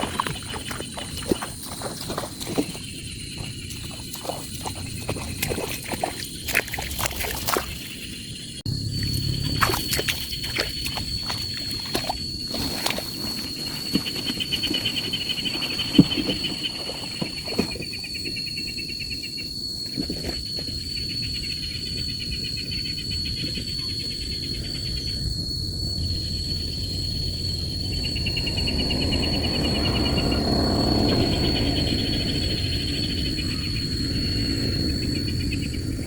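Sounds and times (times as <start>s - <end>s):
insect pulsing trill: 0.0s - 36.0s
insects whining: 0.0s - 36.0s
low rumble: 24.7s - 36.0s.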